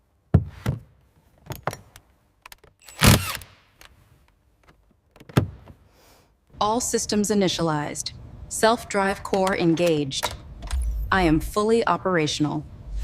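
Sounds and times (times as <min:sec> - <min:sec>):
mechanical clicks and clunks: 0:09.1 - 0:11.1.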